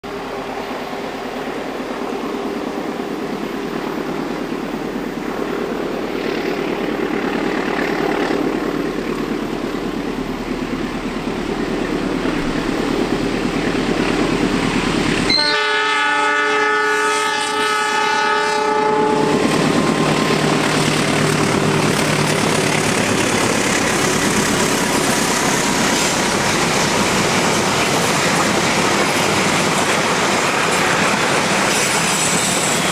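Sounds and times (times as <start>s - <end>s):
train rumbling on rails: 0.0s - 32.9s
train horn blast: 15.3s - 19.8s
carriages roaring past: 19.0s - 32.9s.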